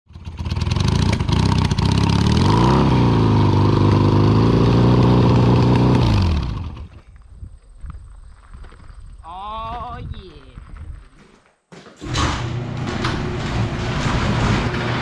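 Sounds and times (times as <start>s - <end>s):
motorcycle engine revving: 0.1s - 7.0s.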